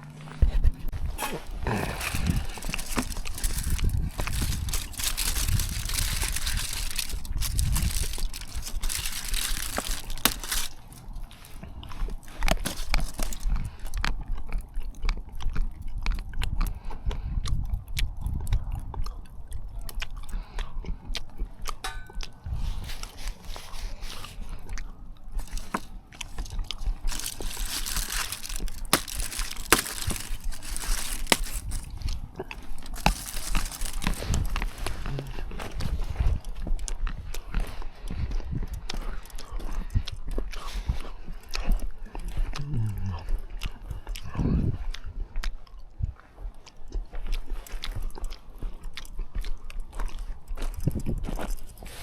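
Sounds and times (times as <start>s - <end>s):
low mouth sound: 0.0s - 2.7s, 42.2s - 45.1s
person chewing and crunching food: 0.0s - 52.0s
person chewing with wet mouth clicks: 13.4s - 22.4s.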